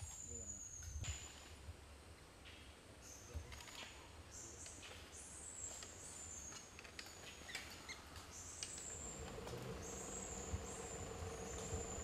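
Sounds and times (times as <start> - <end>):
faint steady hum: 7.9 - 12.0
bird high-pitched drawn-out notes: 8.9 - 12.0.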